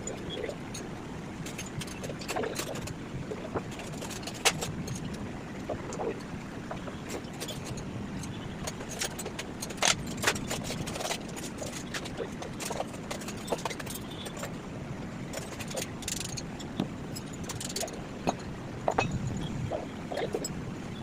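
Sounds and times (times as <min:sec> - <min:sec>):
low background rumble: 0:00.0 - 0:21.0
metallic clinks and knocks: 0:07.0 - 0:14.5, 0:15.3 - 0:20.6.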